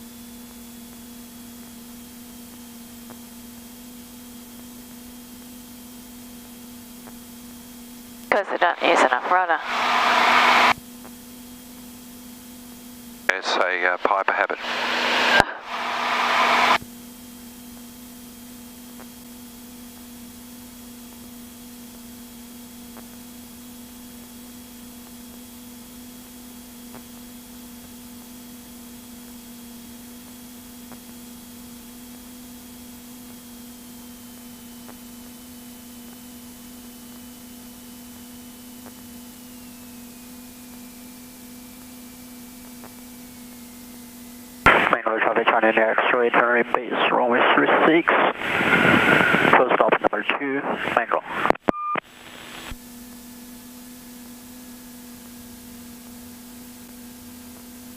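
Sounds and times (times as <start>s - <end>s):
electrical hum and hiss: 0.0s - 57.9s
faint high whine: 0.0s - 57.9s
burst of radio hiss: 8.3s - 10.8s, 13.3s - 16.8s, 44.7s - 52.8s.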